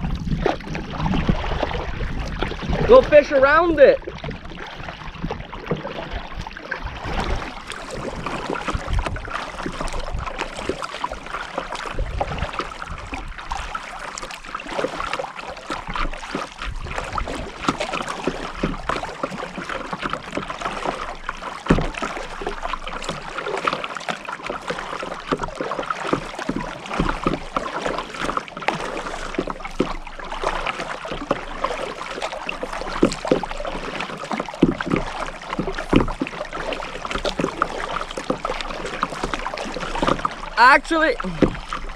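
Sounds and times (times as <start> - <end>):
paddle splashing in water: 0.0 - 41.9
water lapping: 0.0 - 41.9
knocks against hull: 4.0 - 10.9, 15.7 - 23.8, 24.4 - 40.5, 41.2 - 41.9.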